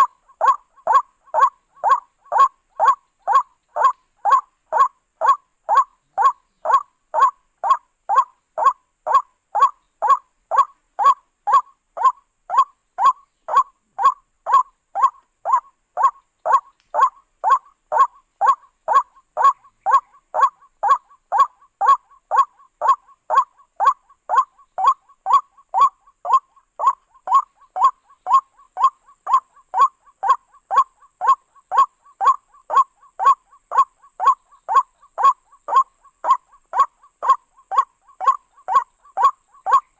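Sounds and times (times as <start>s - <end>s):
waterhen calling: 0.0s - 39.9s.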